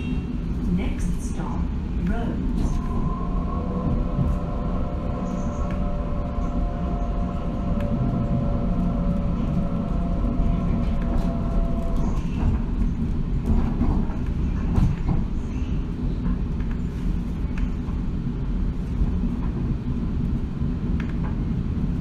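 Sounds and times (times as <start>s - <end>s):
train wheels rumbling on track: 0.0s - 22.0s
traction motor whine: 2.8s - 12.2s.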